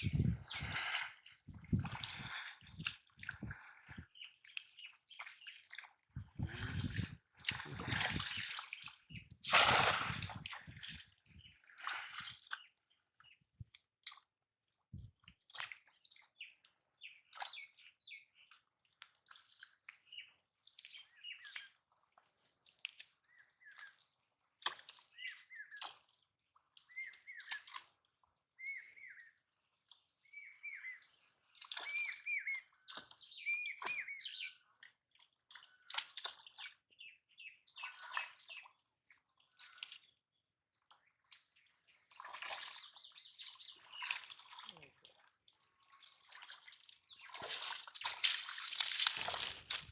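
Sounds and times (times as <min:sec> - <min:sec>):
small birds chirping: 0:30.2 - 0:34.7, 0:42.8 - 0:48.2.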